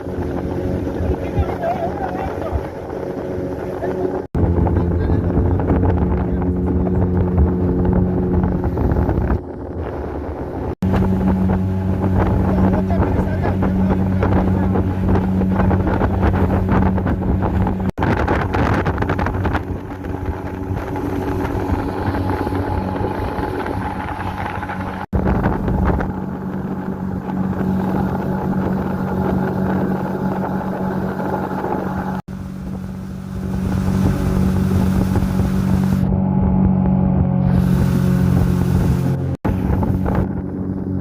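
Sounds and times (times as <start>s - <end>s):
outboard motor running: 0.0s - 41.0s
wind buffeting microphone: 0.0s - 41.0s.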